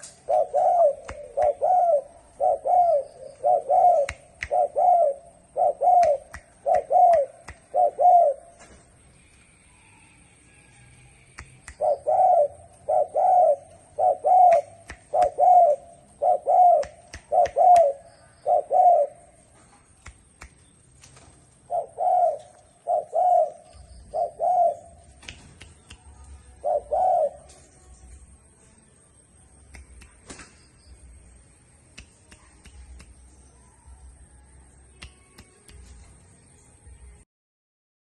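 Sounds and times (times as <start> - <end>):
dove cooing: 0.0 - 8.6, 11.8 - 19.4, 21.6 - 25.2, 26.5 - 27.6.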